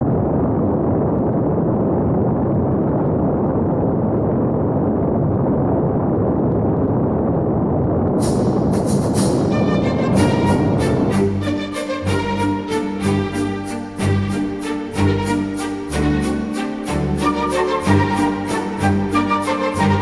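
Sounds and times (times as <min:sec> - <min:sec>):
wind buffeting microphone: 0:00.0 - 0:11.4
sharp hiss: 0:08.2 - 0:19.1.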